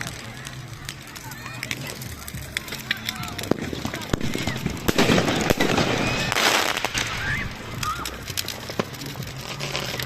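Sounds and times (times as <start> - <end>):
fireworks bangs and crackles: 0.0 - 10.0
firework hissing burst: 2.8 - 10.0.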